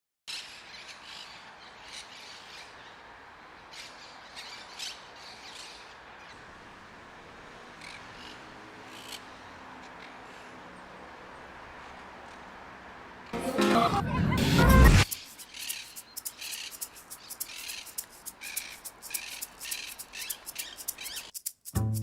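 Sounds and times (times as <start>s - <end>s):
steady outdoor hiss: 0.3s - 22.0s
birds squawking: 13.2s - 21.4s
low musical tones: 13.4s - 15.1s.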